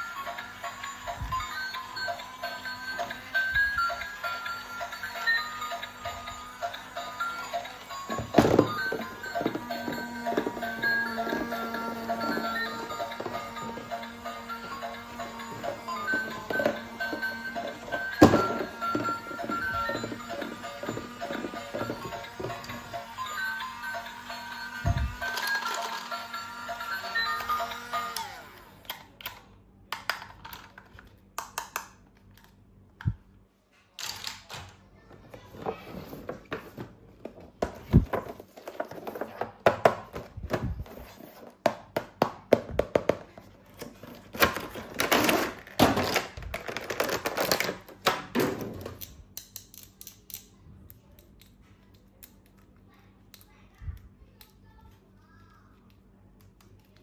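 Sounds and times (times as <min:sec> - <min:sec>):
toy parts clicking and tapping: 0:24.8 - 0:26.3, 0:28.9 - 0:33.1, 0:49.0 - 0:57.0
plastic packaging crinkling: 0:44.2 - 0:47.9.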